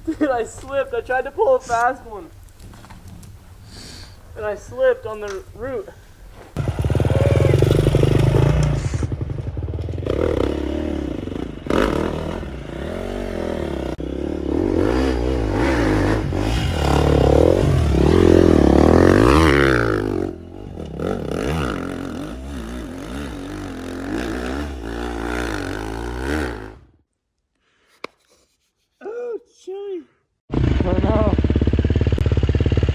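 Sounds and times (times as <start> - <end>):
dirt bike engine revving: 6.6 - 27.0, 30.5 - 32.9.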